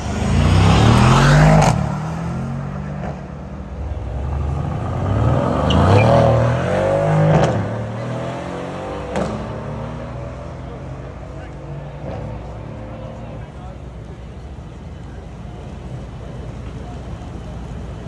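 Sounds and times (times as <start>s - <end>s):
cars accelerating hard: 0.0s - 13.7s.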